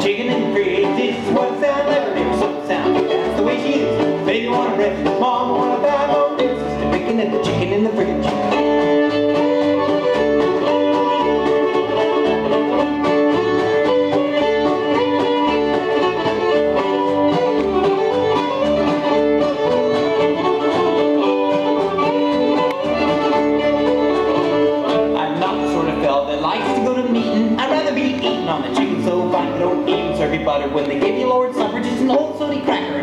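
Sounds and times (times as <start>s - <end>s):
fiddle melody: 0.0s - 33.0s
guitar: 0.0s - 33.0s.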